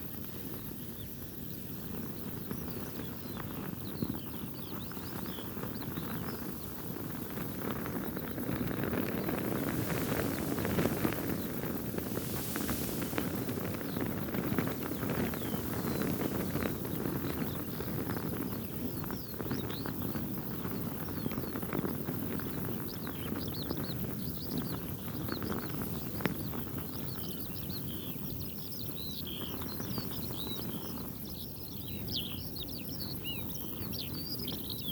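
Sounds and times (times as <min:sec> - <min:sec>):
wind buffeting microphone: 0:00.0 - 0:34.9
fabric flapping in wind: 0:00.1 - 0:31.2
birds chirping: 0:00.9 - 0:21.6.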